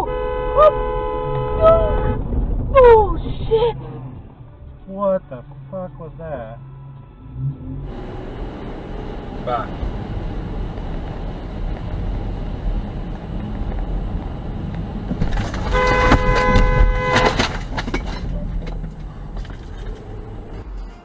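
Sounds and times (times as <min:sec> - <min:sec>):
car horn: 0:00.0 - 0:02.4, 0:15.4 - 0:17.8
road and engine rumble: 0:00.0 - 0:21.0.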